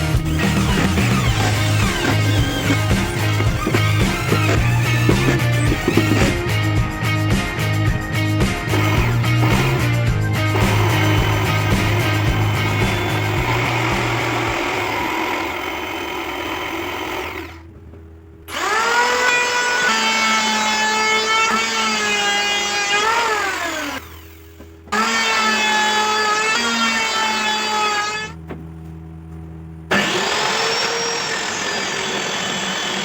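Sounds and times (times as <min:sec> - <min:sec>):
power tool motor whining: 0:00.0 - 0:06.7, 0:08.7 - 0:17.7, 0:18.5 - 0:28.4, 0:29.9 - 0:33.0.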